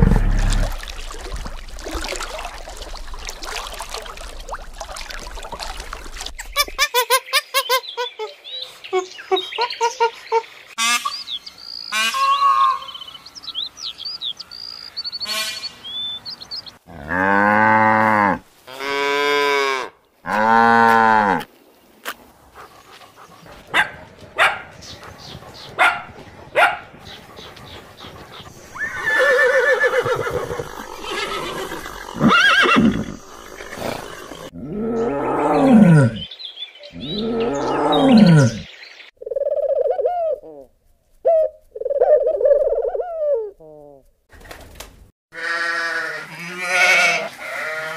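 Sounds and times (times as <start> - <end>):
dogs barking: 22.5 - 28.5
sheep bleating: 45.4 - 47.9.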